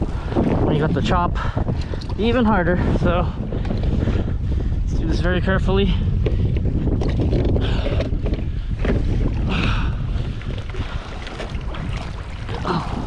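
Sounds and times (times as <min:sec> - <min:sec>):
wind buffeting microphone: 0:00.0 - 0:13.0
water sloshing around kayak: 0:07.0 - 0:13.0.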